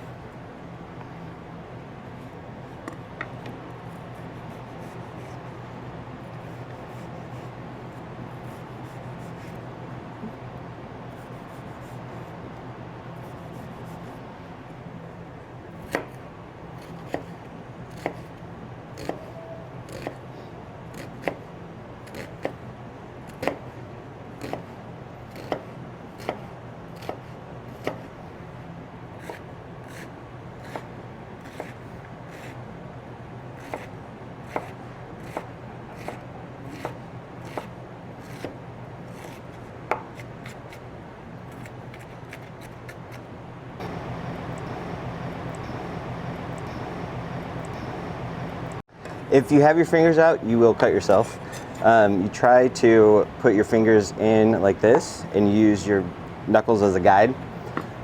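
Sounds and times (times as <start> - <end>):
steady low hum: 0.0 - 58.0
knife slicing onion: 3.8 - 5.4, 6.2 - 9.7, 13.2 - 14.2, 15.8 - 16.2, 16.8 - 18.4, 19.0 - 20.2, 20.9 - 21.4, 22.0 - 22.6, 23.3 - 23.6, 24.4 - 24.7, 25.3 - 28.1, 29.2 - 32.6, 33.6 - 40.9, 41.5 - 43.3.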